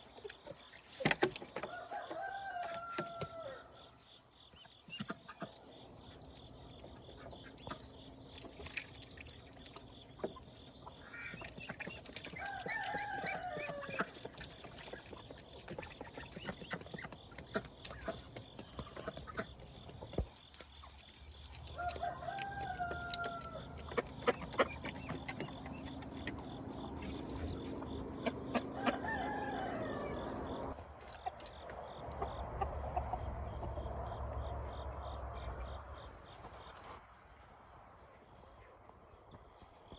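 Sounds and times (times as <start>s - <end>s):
rooster crowing: 1.6s - 3.8s, 12.4s - 14.0s, 21.7s - 23.8s, 28.5s - 30.7s
hens clucking: 9.3s - 37.0s.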